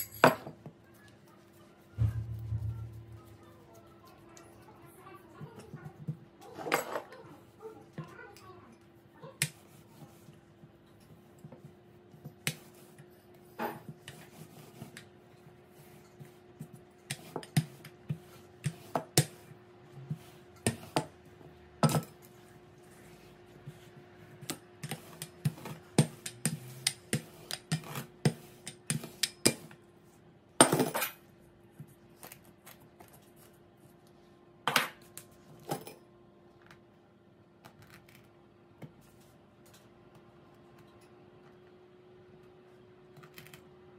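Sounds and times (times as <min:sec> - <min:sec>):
steady low hum: 0:01.9 - 0:04.2.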